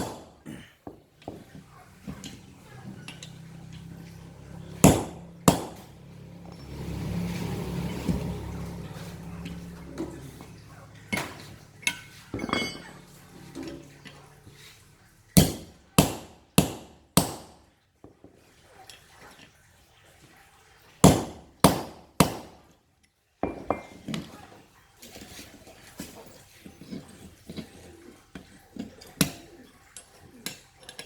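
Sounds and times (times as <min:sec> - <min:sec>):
hammer striking steel: 0:00.0 - 0:00.4, 0:04.8 - 0:05.9, 0:11.9 - 0:13.0.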